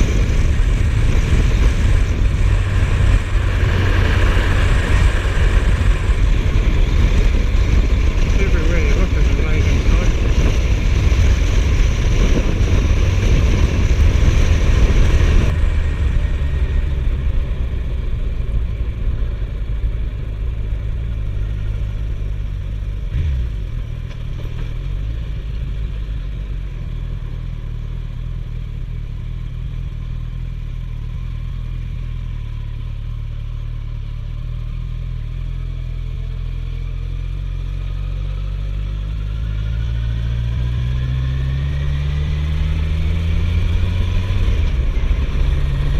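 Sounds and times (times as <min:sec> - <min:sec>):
loud wind rush: 0:00.0 - 0:19.1
motorcycle engine running: 0:00.0 - 0:45.9.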